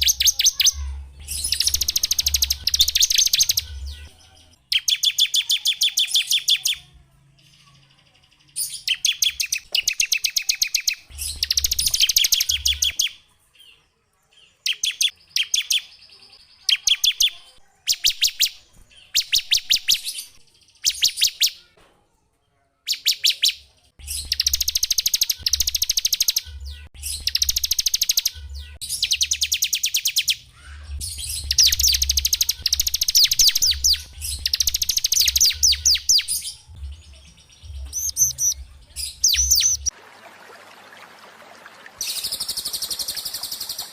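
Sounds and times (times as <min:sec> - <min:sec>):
songbirds trilling: 0:00.0 - 0:06.8, 0:07.4 - 0:13.8, 0:22.9 - 0:40.0, 0:41.2 - 0:43.9.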